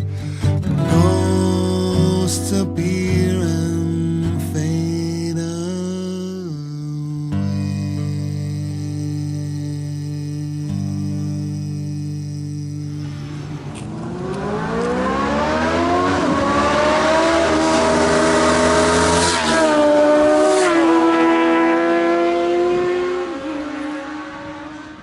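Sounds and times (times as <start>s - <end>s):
motorcycle engine accelerating: 0.6s - 25.0s.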